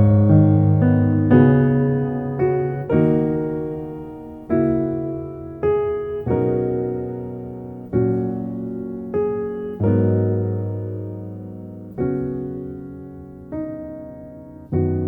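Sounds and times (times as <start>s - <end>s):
slow gentle piano chords: 0.0s - 15.0s.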